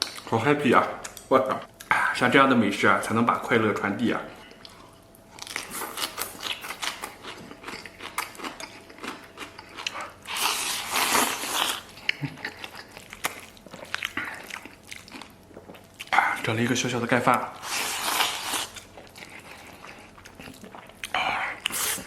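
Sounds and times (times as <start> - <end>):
chewing: 4.5 - 16.5, 17.6 - 22.0.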